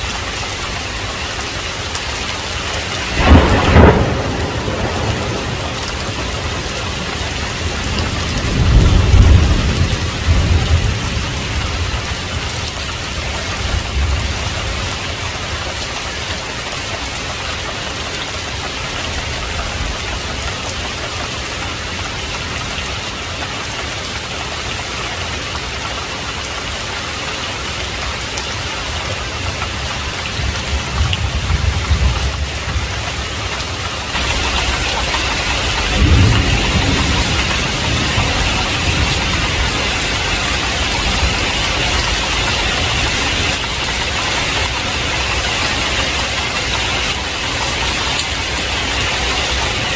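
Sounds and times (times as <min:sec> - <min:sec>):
heavy rain: 0:00.0 - 0:49.9
thunder rumbling: 0:02.4 - 0:16.6, 0:27.9 - 0:49.9.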